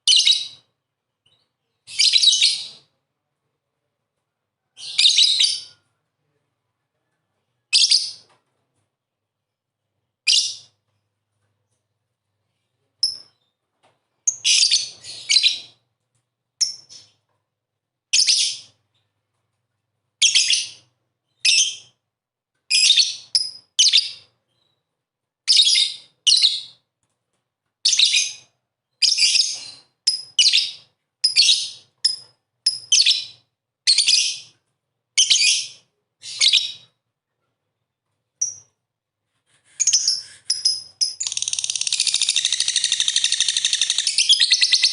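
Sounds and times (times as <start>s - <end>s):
lovebird shrill chirps: 39.8s - 44.9s.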